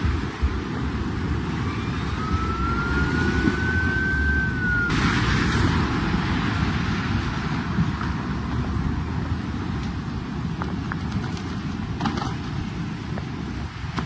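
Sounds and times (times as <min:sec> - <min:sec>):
floodwater rushing: 0:00.0 - 0:10.9
rain: 0:00.0 - 0:14.0
distant siren wailing: 0:01.4 - 0:05.6.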